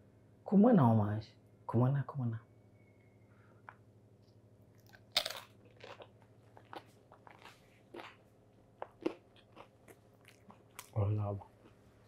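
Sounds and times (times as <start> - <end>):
crunching chewing of food: 4.7 - 12.0.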